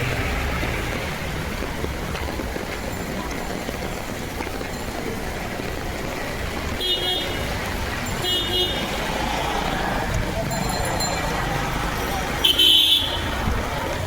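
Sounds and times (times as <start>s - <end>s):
rain hiss: 0.0s - 10.5s
street traffic: 0.0s - 14.0s
vehicle horn toots: 12.4s - 13.3s.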